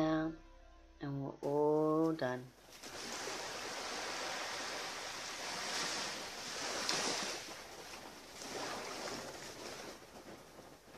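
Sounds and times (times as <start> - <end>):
sea waves breaking on beach: 2.6 - 10.9.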